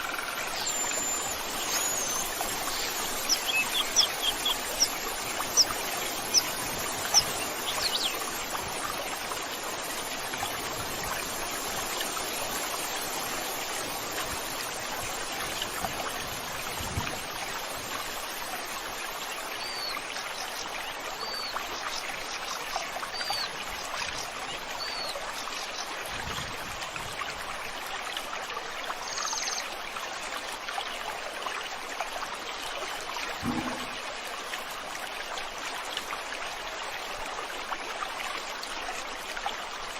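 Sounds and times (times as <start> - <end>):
flowing stream: 0.0 - 39.9.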